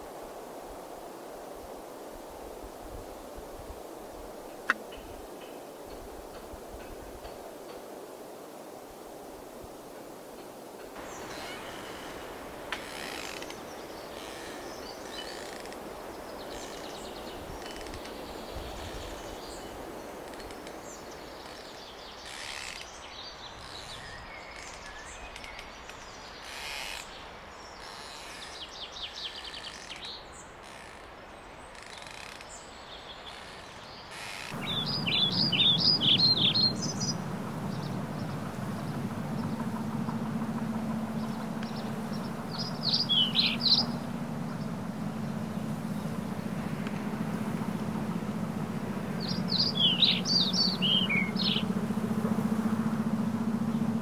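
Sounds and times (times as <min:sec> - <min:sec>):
steady background hiss: 0:00.0 - 0:54.0
small birds chirping: 0:32.9 - 0:54.0
low rumble with droning hum: 0:34.5 - 0:54.0.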